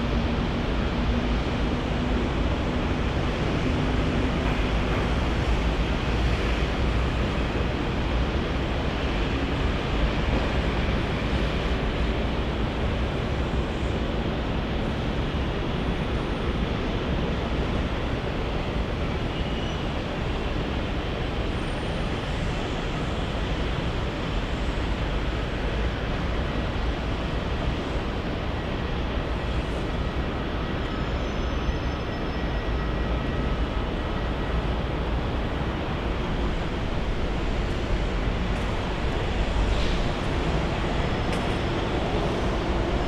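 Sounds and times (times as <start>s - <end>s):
jet engines rushing: 33.2s - 43.0s.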